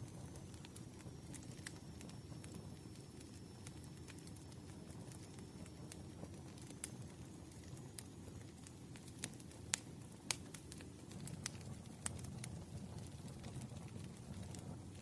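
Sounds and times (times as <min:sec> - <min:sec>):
firewood crackling and popping: 0:00.0 - 0:15.0.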